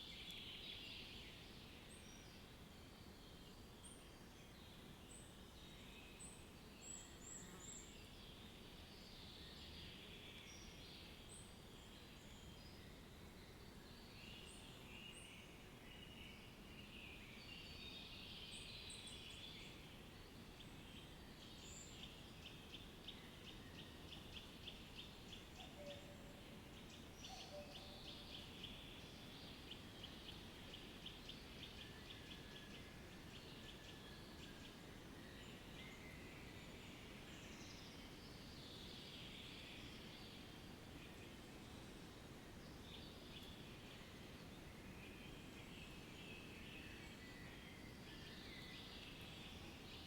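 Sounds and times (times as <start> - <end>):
low steady hiss: 0.0 - 50.0.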